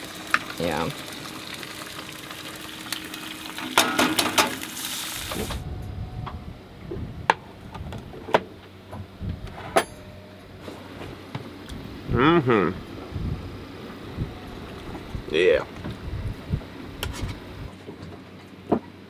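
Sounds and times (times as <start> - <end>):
eggs sizzling in a frying pan: 0.0 - 5.6.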